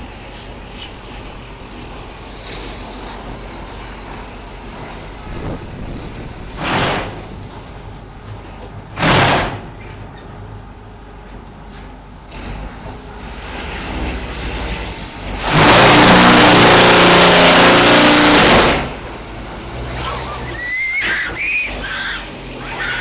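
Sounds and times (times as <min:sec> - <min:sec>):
vehicle engine passing close: 0:13.3 - 0:20.7.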